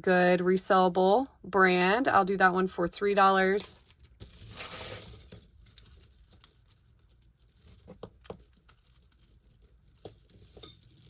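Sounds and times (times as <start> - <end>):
metal pieces clicking and clinking: 3.4 - 11.0
jewelry rustling: 3.5 - 11.0.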